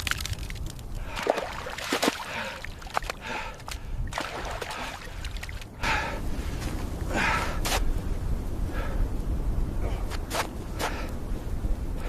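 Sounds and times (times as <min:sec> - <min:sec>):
water splashing and sloshing: 0:00.0 - 0:06.8
steady low rumble: 0:00.0 - 0:12.0.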